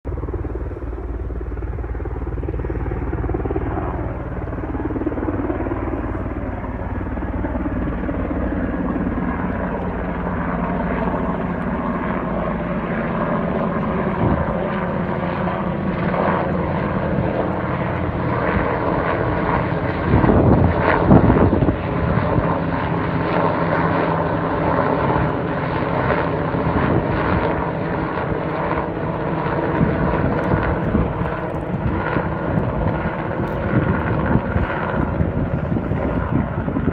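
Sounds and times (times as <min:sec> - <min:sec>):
helicopter rotor drone: 0:00.0 - 0:36.9.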